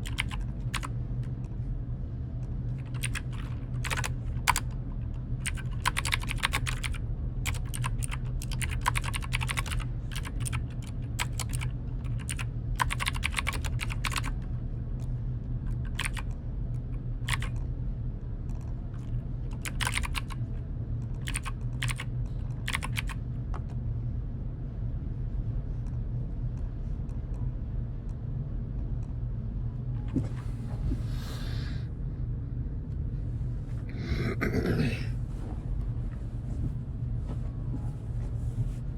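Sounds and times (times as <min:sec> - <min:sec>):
typing on keyboard: 0:00.0 - 0:01.3, 0:02.7 - 0:14.5, 0:15.7 - 0:17.6, 0:18.6 - 0:20.4, 0:21.1 - 0:23.2
low steady hum: 0:00.0 - 0:38.9.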